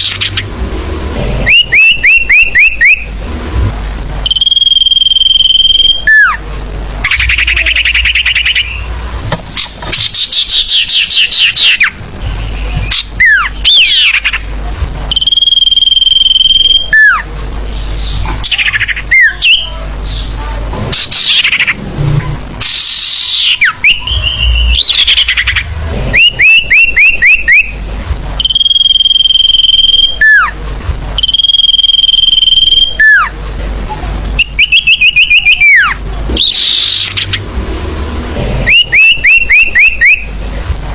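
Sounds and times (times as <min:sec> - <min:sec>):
high bird chirps: 0:01.4 - 0:03.1, 0:04.2 - 0:06.4, 0:07.0 - 0:08.9, 0:09.6 - 0:14.5, 0:15.1 - 0:17.2, 0:21.0 - 0:21.8, 0:22.6 - 0:27.8, 0:28.4 - 0:30.5, 0:31.2 - 0:33.3, 0:34.4 - 0:37.4, 0:38.6 - 0:40.3
held whistle with falling glide: 0:04.2 - 0:06.4, 0:28.4 - 0:30.5, 0:31.2 - 0:33.3, 0:38.7 - 0:40.3.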